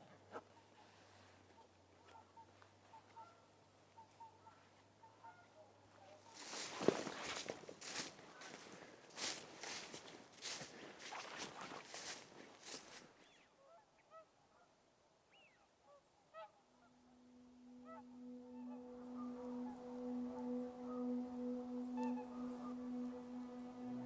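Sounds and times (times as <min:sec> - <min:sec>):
waterfowl honking: 0:02.1 - 0:14.7, 0:15.4 - 0:24.0
footsteps: 0:06.3 - 0:13.2.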